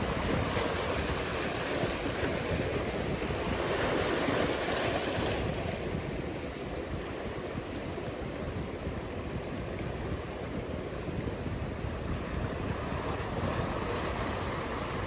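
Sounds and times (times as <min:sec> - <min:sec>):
ocean surf breaking: 0:00.0 - 0:06.6, 0:11.4 - 0:15.0.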